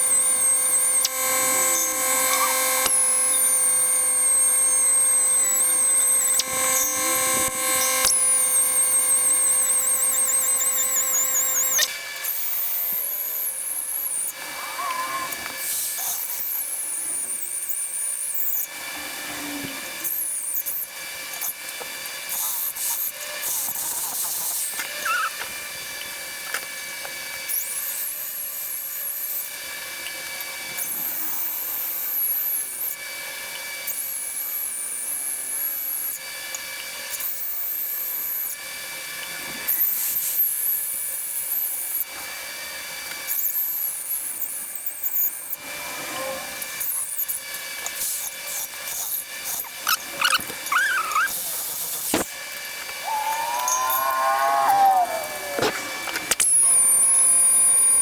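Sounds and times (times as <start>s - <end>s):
angle grinder whine: 0.0s - 12.0s, 49.9s - 58.0s.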